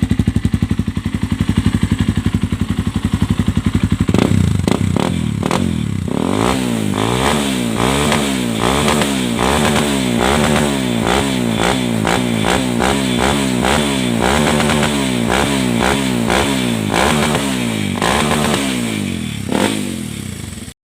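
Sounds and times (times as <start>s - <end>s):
motorcycle engine revving: 0.0s - 20.8s.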